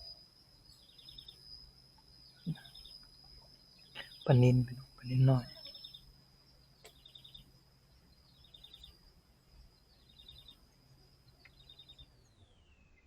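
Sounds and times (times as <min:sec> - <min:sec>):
bird trilled chirp: 0:00.0 - 0:13.0
thin high whine: 0:00.0 - 0:13.0.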